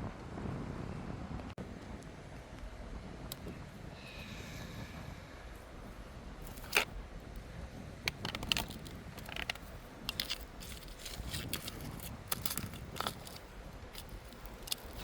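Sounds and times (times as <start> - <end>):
mechanical clicks and rattles: 8.1 - 15.0.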